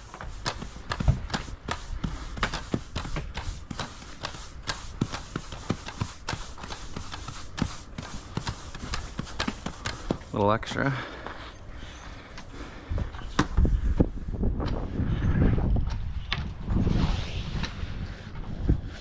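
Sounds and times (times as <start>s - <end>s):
push brooms sweeping pavers: 0.0s - 12.6s.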